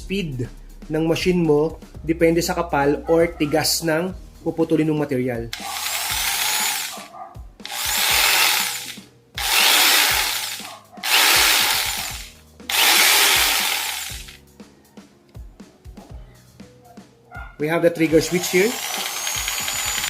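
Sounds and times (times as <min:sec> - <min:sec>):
jigsaw motor running: 0:05.6 - 0:14.4, 0:18.1 - 0:20.0.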